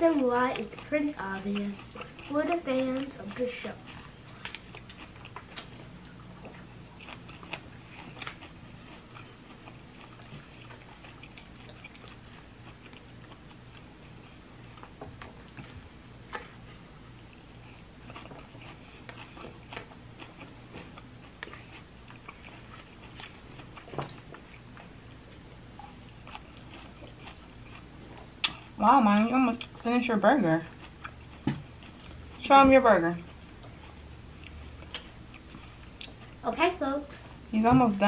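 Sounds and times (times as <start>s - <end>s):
chewing salad greens: 0.0s - 37.2s
low steady hum: 0.0s - 38.0s.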